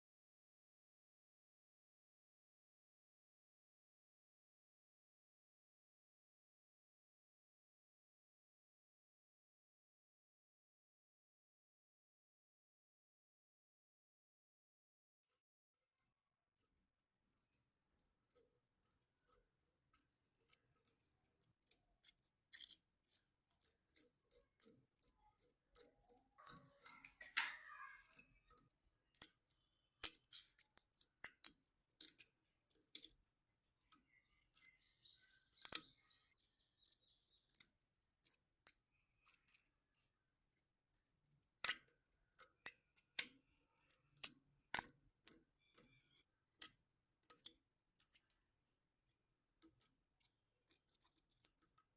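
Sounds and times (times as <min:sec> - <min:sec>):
small metal parts clicking: 0:17.3 - 0:51.9.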